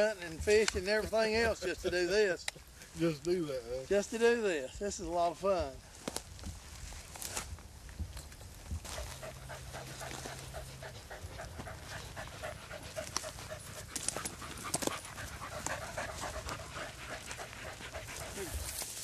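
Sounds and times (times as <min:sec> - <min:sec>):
dog panting: 0:08.8 - 0:19.0.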